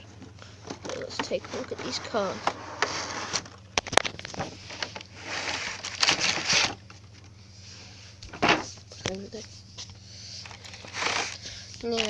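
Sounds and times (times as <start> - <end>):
packaging rustling: 3.3 - 6.8, 10.4 - 12.0.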